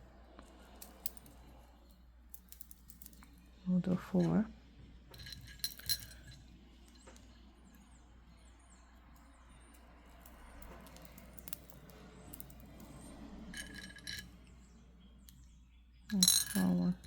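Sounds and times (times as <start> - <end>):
crystal beads clinking: 0.5 - 3.4, 5.2 - 7.1, 9.2 - 14.4, 16.0 - 17.0.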